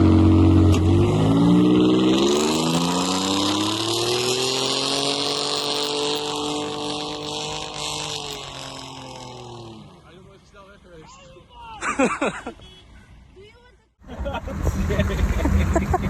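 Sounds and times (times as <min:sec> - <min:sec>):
car engine revving: 0:00.0 - 0:10.4, 0:14.1 - 0:16.0.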